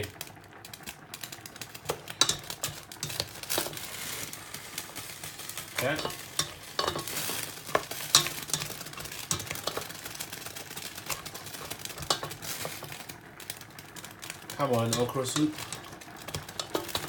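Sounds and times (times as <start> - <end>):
spoon scraping and knocking pot: 1.8 - 3.8, 5.9 - 10.0, 11.0 - 12.9, 14.9 - 17.0.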